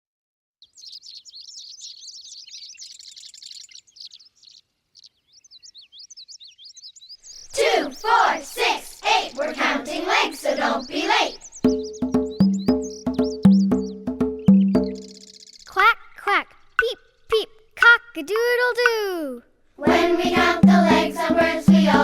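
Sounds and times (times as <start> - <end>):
songbirds twittering: 0.6 - 18.3
lower bird calls bending in pitch: 11.2 - 18.0.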